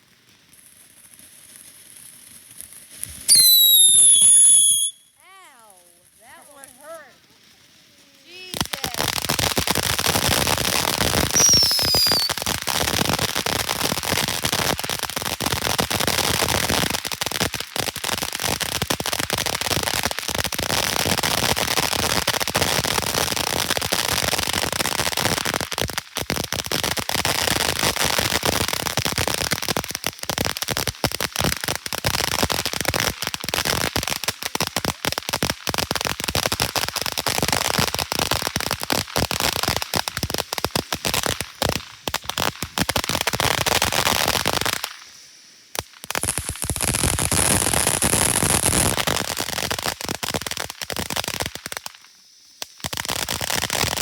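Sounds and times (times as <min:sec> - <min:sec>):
fireworks crackling and popping: 0:00.0 - 0:54.0
falling whistle: 0:03.3 - 0:05.2, 0:11.3 - 0:12.4.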